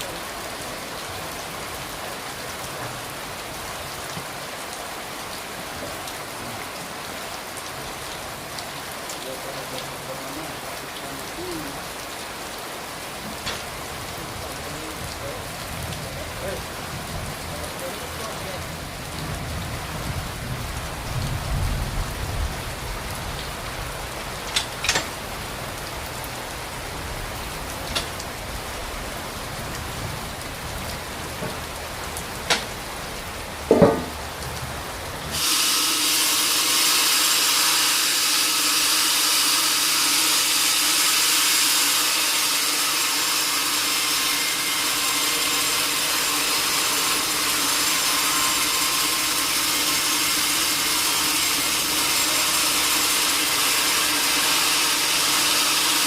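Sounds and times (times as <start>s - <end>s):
steady hiss: 22.3s - 54.8s
sharp knocks: 33.7s - 34.2s
sawmill saw cutting log: 35.3s - 56.0s.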